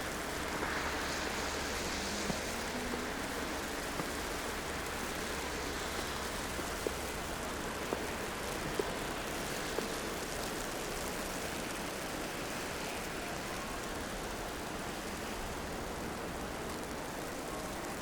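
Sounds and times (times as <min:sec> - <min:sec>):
passing traffic: 0:00.0 - 0:10.0
wet snowfall: 0:00.0 - 0:18.0.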